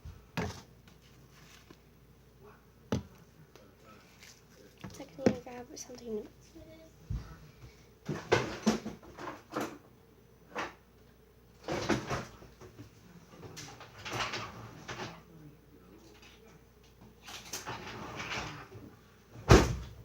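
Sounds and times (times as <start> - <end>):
handling knocks and rustles: 0.0 - 1.9.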